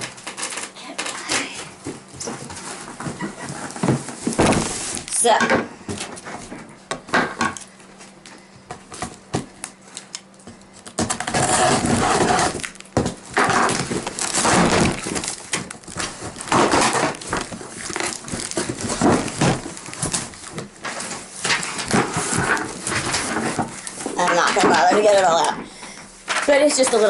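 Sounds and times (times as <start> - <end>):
packaging rustling and crinkling: 0.0 - 5.3, 9.0 - 25.4.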